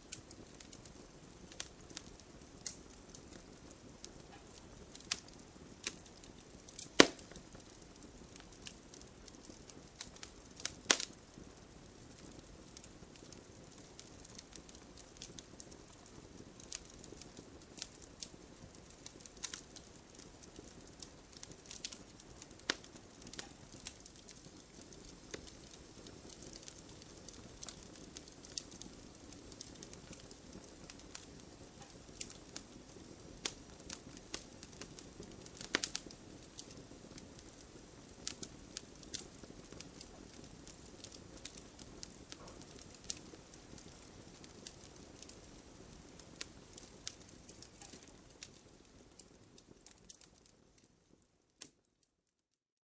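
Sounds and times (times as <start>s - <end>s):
wood fire crackling and popping: 0.0s - 52.2s
soft hiss of flames: 0.0s - 52.4s.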